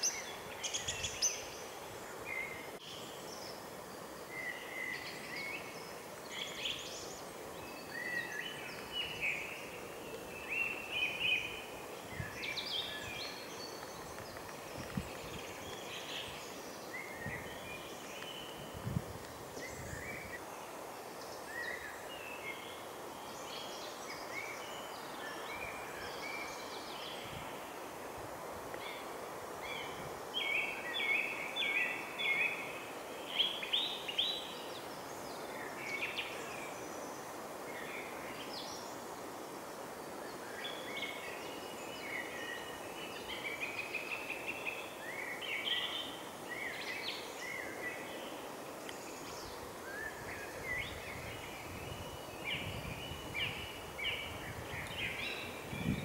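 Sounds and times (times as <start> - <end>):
songbirds chirping and trilling: 0.0 - 56.0
steady background hiss: 0.0 - 56.0.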